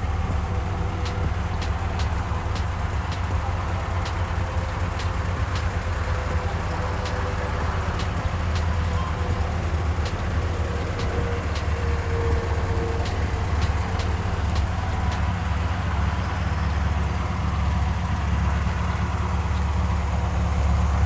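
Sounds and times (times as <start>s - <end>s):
car engine exhaust rumble: 0.0s - 21.0s
sharp ticks: 0.3s - 15.3s.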